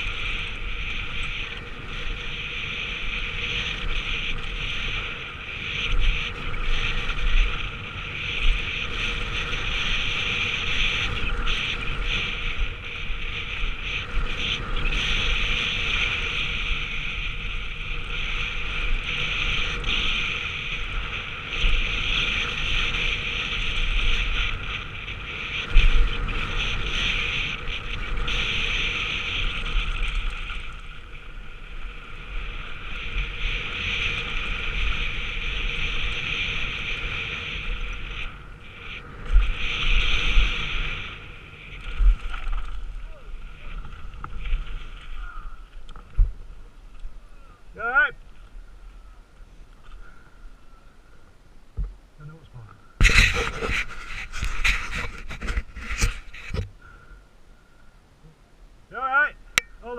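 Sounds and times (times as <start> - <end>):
bike tyre and frame rattle: 0.0 - 50.8, 52.8 - 57.1
wind rush on microphone: 0.0 - 57.8
sharp thumps from bumps: 51.7 - 52.0.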